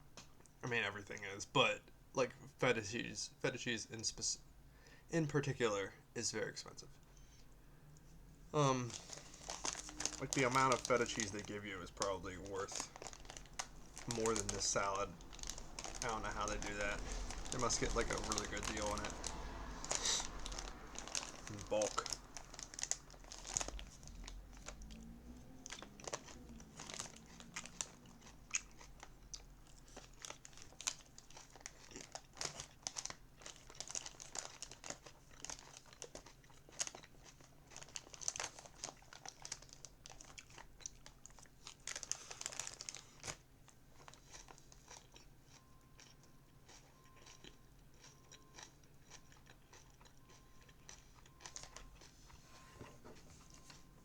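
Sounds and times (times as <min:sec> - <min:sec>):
plastic packaging crinkling: 0:08.6 - 0:43.4, 0:50.9 - 0:52.3
crunchy chewing of salad: 0:08.6 - 0:54.0.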